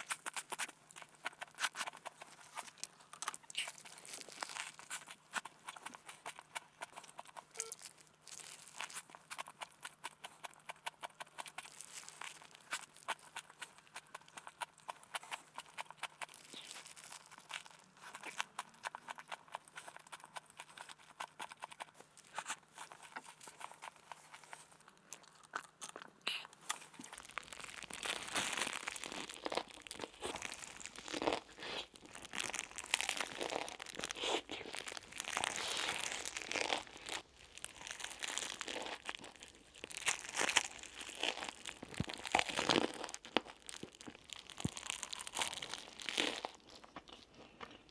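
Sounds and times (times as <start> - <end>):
crinkling and rustling food preparation: 0.0 - 47.9.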